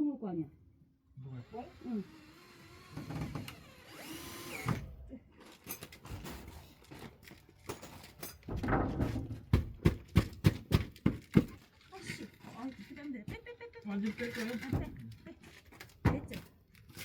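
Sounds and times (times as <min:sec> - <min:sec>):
power drill whining: 0:01.2 - 0:05.7
knocks and clatter on wood: 0:07.7 - 0:11.8.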